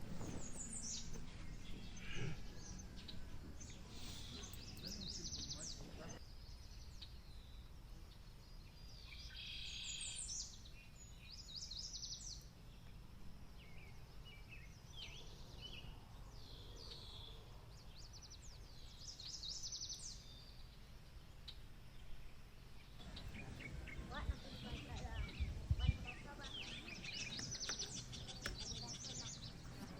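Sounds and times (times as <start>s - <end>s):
birds chirping and singing: 0.0s - 7.6s, 13.6s - 29.9s.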